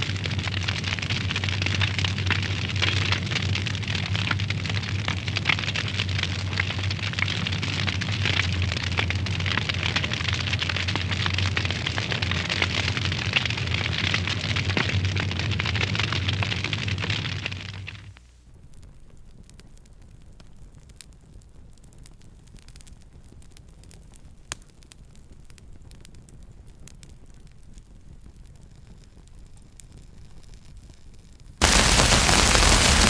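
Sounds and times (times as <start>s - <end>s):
wood fire crackling: 0.0s - 18.2s, 31.6s - 33.0s.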